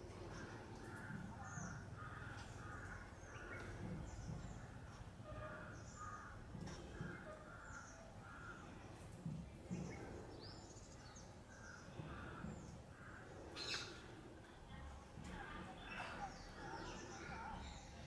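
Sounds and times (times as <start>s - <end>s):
harsh caw-like bird calls: 0.2s - 9.0s, 11.0s - 14.2s.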